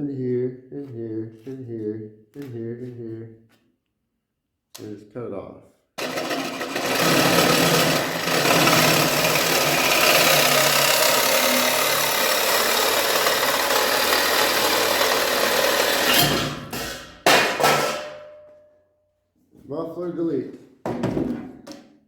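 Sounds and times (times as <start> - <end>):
power tool cutting steel pipe: 6.0 - 17.1.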